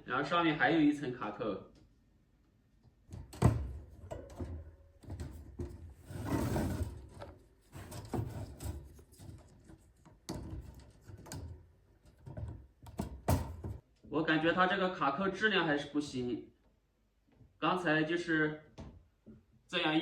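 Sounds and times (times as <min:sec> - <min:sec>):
wire mesh rattling and rubbing: 0:06.1 - 0:12.6.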